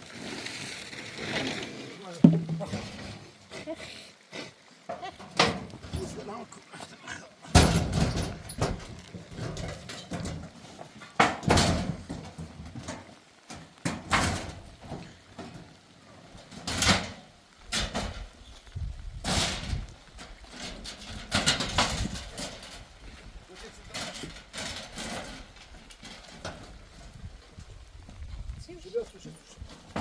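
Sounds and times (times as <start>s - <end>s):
heavy ringing thumps: 2.3s - 3.0s.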